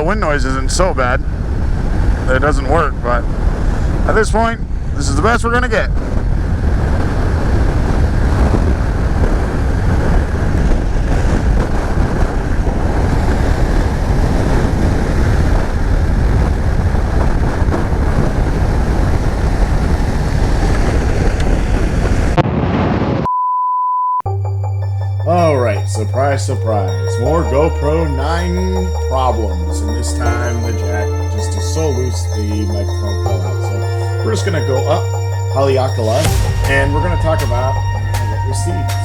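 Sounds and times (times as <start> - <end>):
wind buffeting microphone: 0.0 - 23.3
motorcycle riding noise: 5.9 - 22.4
steady beep: 23.3 - 39.0
music: 24.3 - 39.0.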